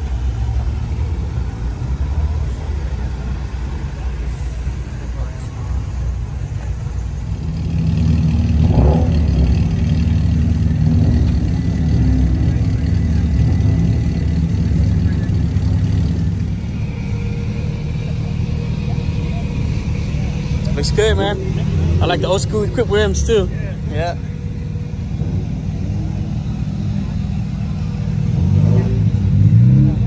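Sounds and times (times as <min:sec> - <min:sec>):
car engine rumbling: 0:00.0 - 0:30.0.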